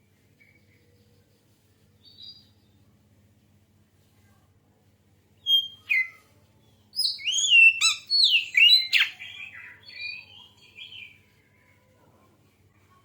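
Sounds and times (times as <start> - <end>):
magpie-robin singing: 5.4 - 6.2, 6.9 - 11.2.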